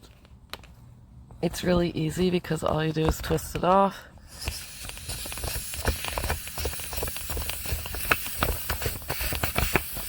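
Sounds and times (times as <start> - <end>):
air hissing out of valve: 4.2 - 10.0.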